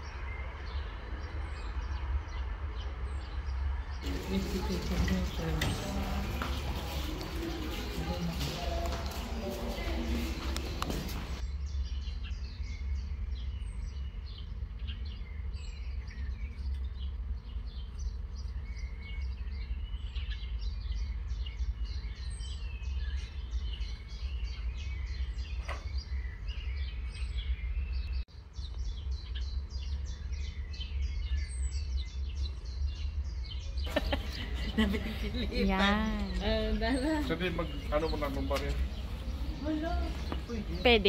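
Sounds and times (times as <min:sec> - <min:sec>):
small birds chirping: 0:00.0 - 0:41.0
steady low rumble: 0:00.0 - 0:41.0.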